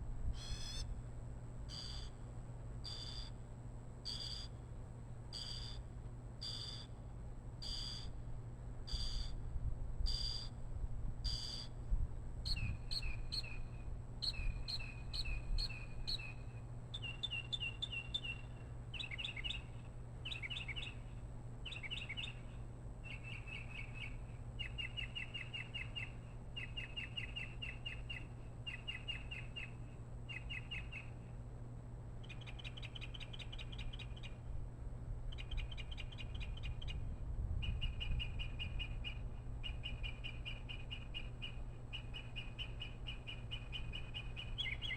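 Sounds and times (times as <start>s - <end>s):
faint high whine: 0.0s - 44.9s
steady low hum: 0.0s - 44.9s
bird chirping: 12.5s - 31.2s, 32.2s - 34.4s, 35.3s - 37.0s, 37.6s - 44.9s.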